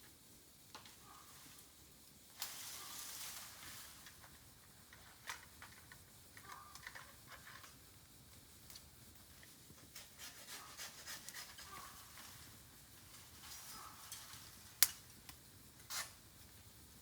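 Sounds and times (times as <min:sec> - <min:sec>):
bamboo crackling in fire: 0:00.0 - 0:17.0
fire hiss: 0:00.0 - 0:17.0
short high squeaks: 0:15.9 - 0:16.2.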